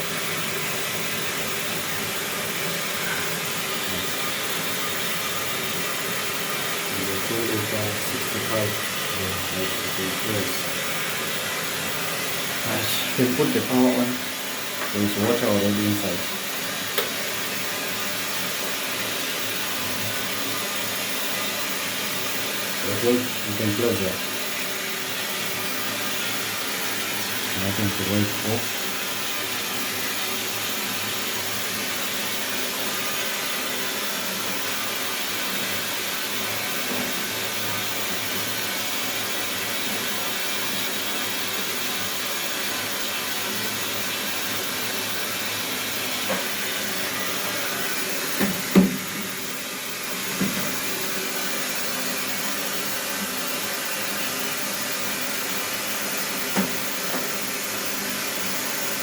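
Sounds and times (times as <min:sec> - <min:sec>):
water hissing through plumbing: 0:01.8 - 0:21.1.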